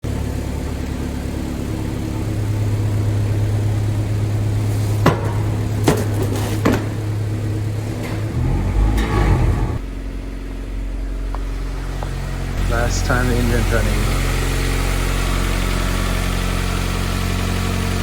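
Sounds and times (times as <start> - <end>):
car engine idling: 7.9 - 9.8, 10.6 - 18.0.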